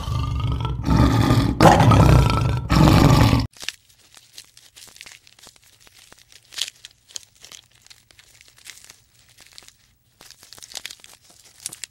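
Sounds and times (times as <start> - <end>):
dry grass and brush crackling: 3.5 - 11.9.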